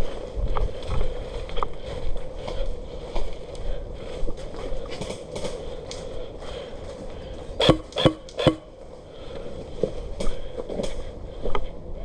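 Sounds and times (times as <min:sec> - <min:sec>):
wind rumble on microphone: 0:00.0 - 0:07.6.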